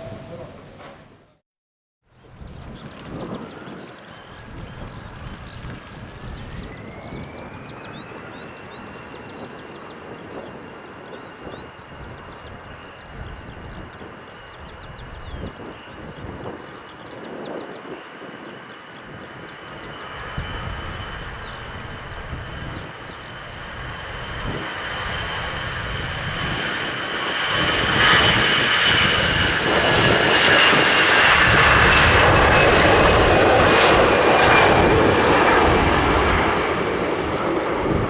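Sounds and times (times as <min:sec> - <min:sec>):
high whine rising in pitch: 0:00.0 - 0:01.4
jet engines spooling up: 0:00.0 - 0:01.4, 0:02.3 - 0:38.0.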